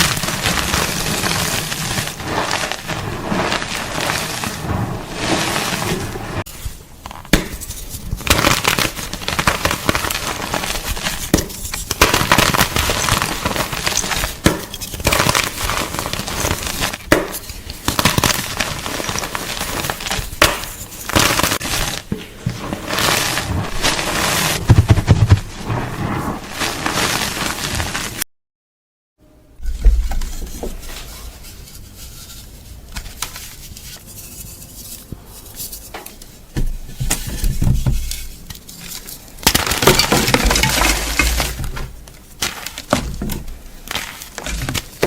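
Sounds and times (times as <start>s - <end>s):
chalk crunching and crumbling: 0.0s - 6.6s, 7.5s - 28.2s, 37.0s - 45.0s.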